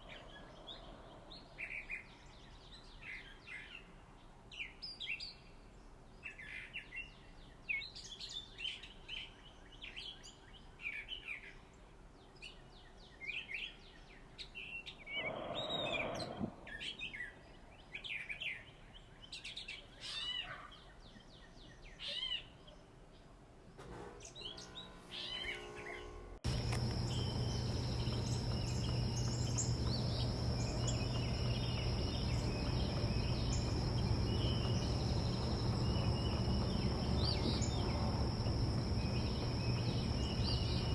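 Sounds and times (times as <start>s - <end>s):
small birds chirping: 0.0s - 23.4s, 24.2s - 40.9s
low hum: 24.7s - 40.9s
high insect drone: 25.3s - 40.9s.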